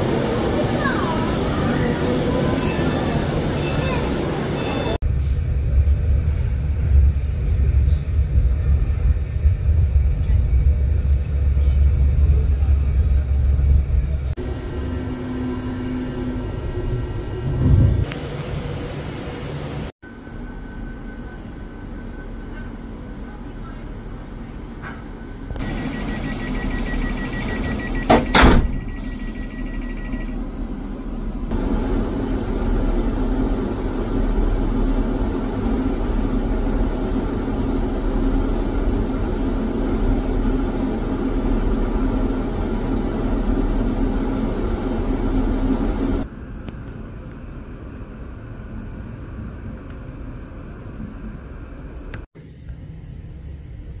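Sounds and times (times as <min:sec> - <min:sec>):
train passing rumble: 0:00.0 - 0:28.2, 0:30.4 - 0:54.0
train interior running noise: 0:00.0 - 0:54.0
door-warning tone: 0:25.6 - 0:30.4
train doors clunking shut: 0:25.7 - 0:29.3.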